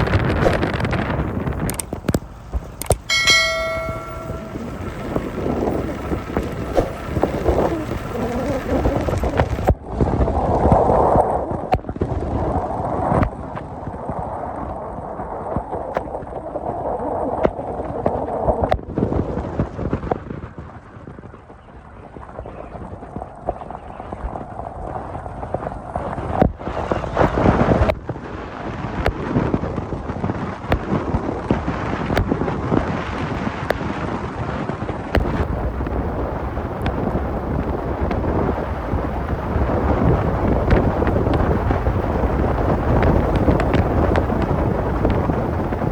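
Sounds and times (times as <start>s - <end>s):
car driving rumble: 0.0s - 9.7s, 35.2s - 45.9s
wind buffeting microphone: 0.0s - 11.5s, 29.1s - 45.9s.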